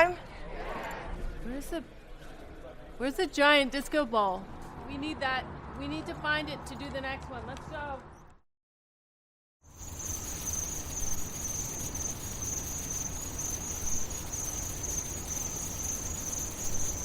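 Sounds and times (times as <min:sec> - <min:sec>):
crickets chirping: 0:09.6 - 0:17.0.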